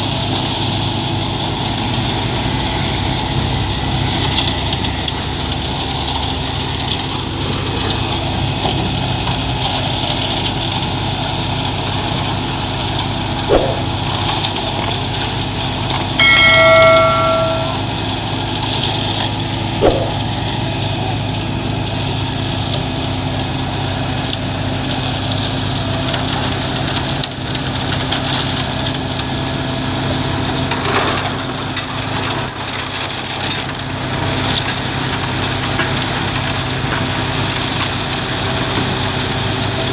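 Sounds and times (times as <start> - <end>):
sharp knocks: 13.5 - 14.0, 16.2 - 17.9, 19.8 - 20.3
steady pitched tone: 13.5 - 14.1, 16.2 - 18.0, 19.8 - 20.4.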